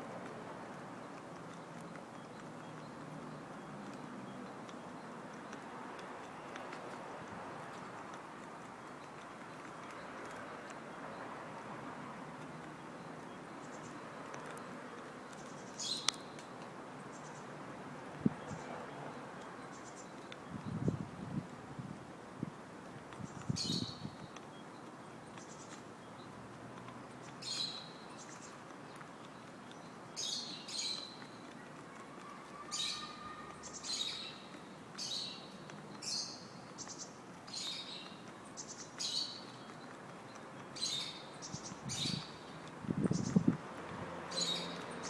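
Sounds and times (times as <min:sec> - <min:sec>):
small bird chirping: 0:32.2 - 0:43.5, 0:44.3 - 0:45.0.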